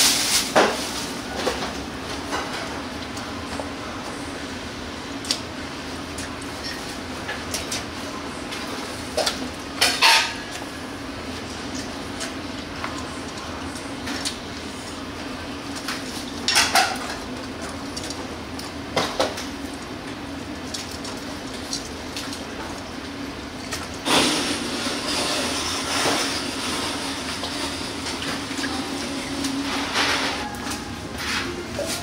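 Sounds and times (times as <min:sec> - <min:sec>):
metal kitchenware clattering: 0:09.8 - 0:10.5.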